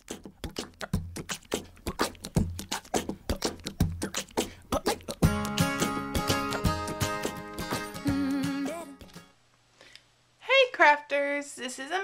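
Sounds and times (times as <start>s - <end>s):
rhythmic beat of clicks and thumps: 0.0s - 9.3s.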